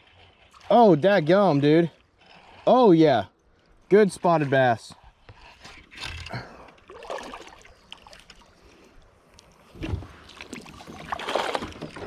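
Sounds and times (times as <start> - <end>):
water splashing on kayak: 6.8 - 8.6, 9.6 - 12.0.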